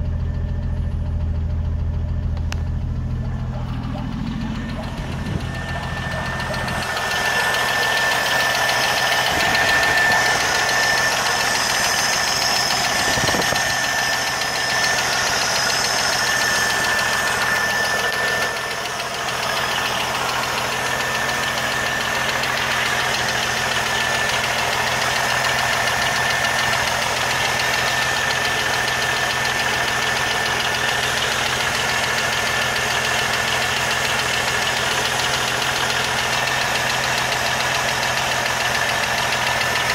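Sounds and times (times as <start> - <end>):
car engine running: 0.0 - 39.9
fast continuous ticking: 3.5 - 33.5.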